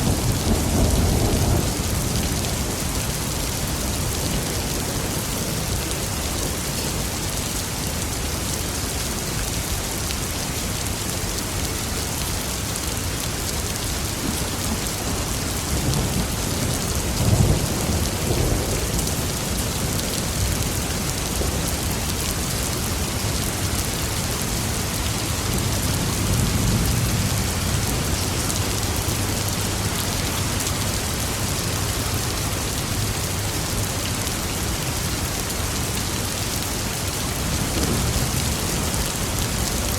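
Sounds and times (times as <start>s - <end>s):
rumble of thunder: 0.0s - 4.5s, 14.1s - 21.8s, 37.4s - 39.9s
heavy rain falling: 0.0s - 39.9s.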